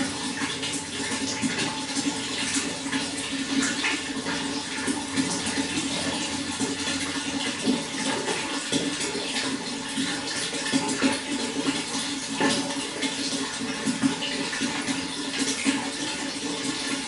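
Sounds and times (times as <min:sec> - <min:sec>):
running water splashing: 0:00.0 - 0:17.0.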